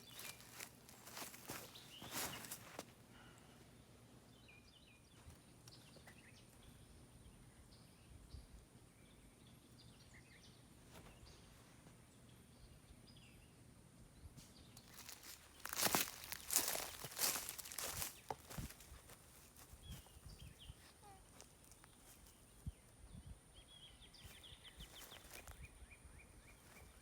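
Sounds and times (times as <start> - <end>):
crunching footsteps: 0.0 - 2.9, 14.8 - 20.2, 24.3 - 25.6
faint birds chirping: 0.0 - 27.0.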